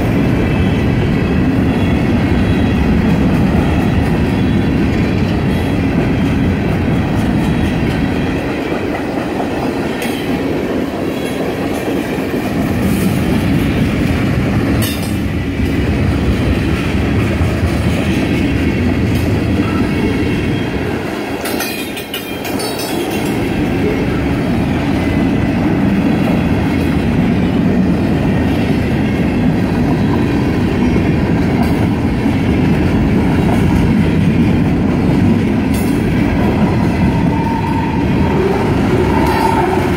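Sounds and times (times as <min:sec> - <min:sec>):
freight cars rumbling: 0:00.0 - 0:39.9
wheels clacking over rail joints: 0:02.9 - 0:39.9.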